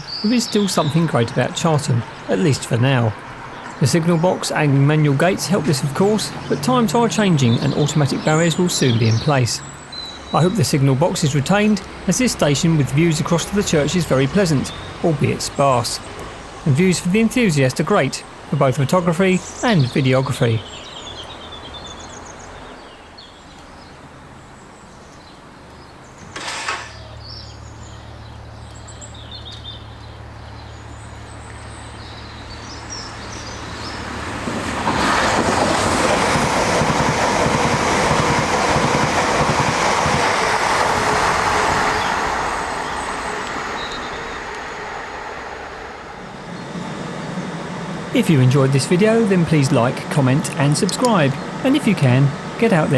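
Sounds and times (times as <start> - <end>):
electric train passing: 0.0 - 23.2, 29.8 - 52.9
birds chirping: 0.0 - 52.9.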